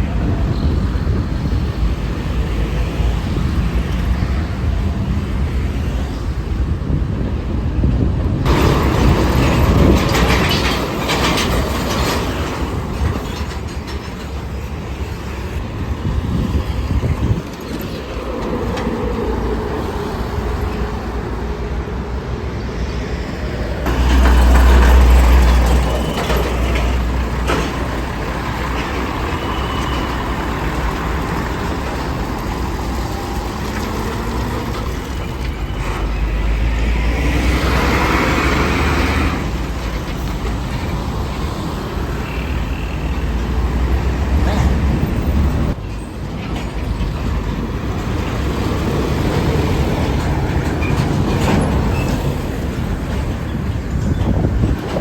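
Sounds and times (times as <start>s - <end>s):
traffic passing: 0.0s - 55.0s
heavy vehicle passing: 15.0s - 45.8s.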